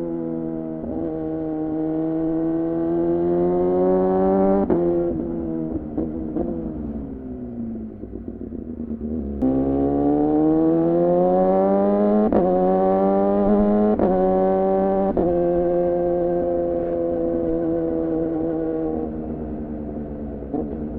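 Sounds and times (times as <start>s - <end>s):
motorcycle engine revving: 0.4s - 20.9s.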